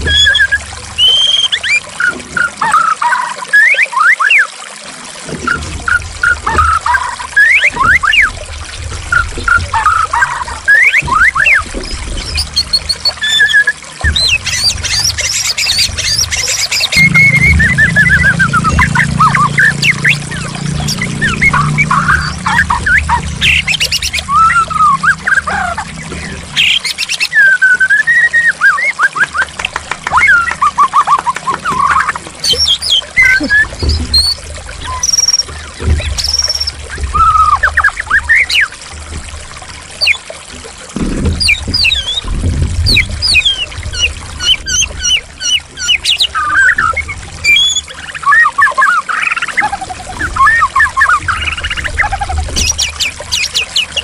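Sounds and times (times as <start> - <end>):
bird singing whistled notes: 0.0 - 2.9, 3.5 - 4.5, 9.5 - 25.6, 26.6 - 29.5, 30.1 - 38.7, 40.0 - 40.2, 41.4 - 42.3, 42.9 - 49.4
trickling water: 0.0 - 54.0
harsh bird chattering: 9.6 - 38.7, 40.0 - 40.2, 41.4 - 42.3, 42.9 - 54.0.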